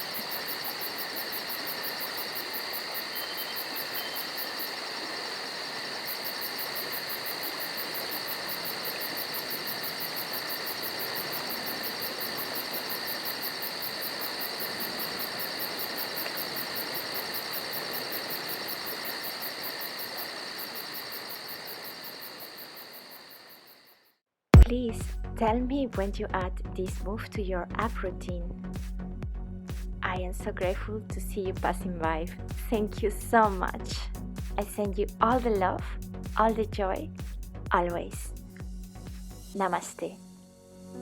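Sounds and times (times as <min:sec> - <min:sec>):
outdoor hiss: 0:00.0 - 0:23.8
insects chirping: 0:00.0 - 0:24.0.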